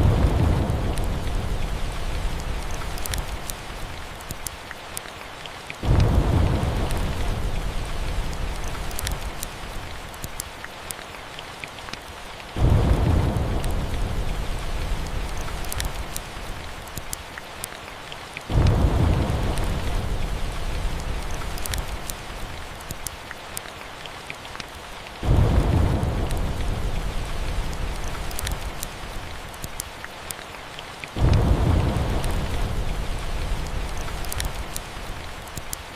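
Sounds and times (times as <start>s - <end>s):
thunder rumbles: 0.0s - 4.3s, 5.8s - 10.1s, 12.5s - 16.9s, 18.5s - 22.8s, 25.2s - 29.6s, 31.2s - 35.7s
steady rain: 0.0s - 35.9s.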